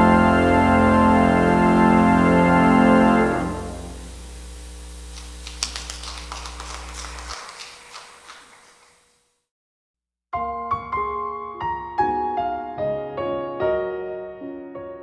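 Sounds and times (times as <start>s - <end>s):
low organ pedal note: 0.0s - 5.1s
organ chord: 0.0s - 6.4s.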